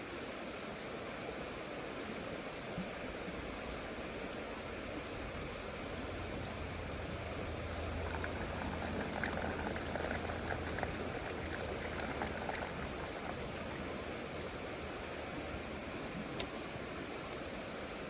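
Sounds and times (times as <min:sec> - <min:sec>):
liquid bubbling and spitting: 0:06.0 - 0:14.9.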